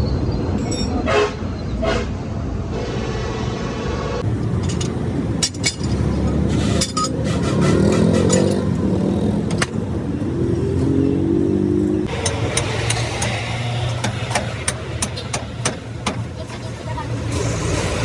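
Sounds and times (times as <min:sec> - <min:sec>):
vehicle engines accelerating: 0:02.4 - 0:18.0
sharp metallic clinks: 0:04.6 - 0:07.2.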